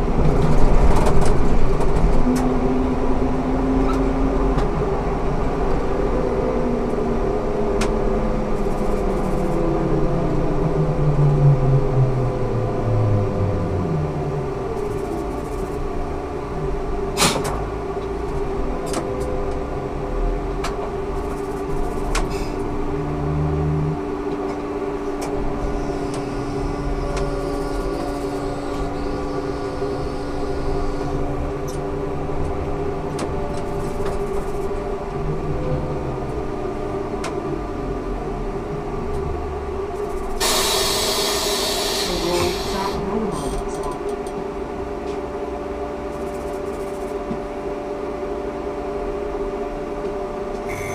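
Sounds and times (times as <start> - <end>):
trolleybus electric drive whine: 0.0 - 50.9
loud burst of hiss: 40.4 - 43.0.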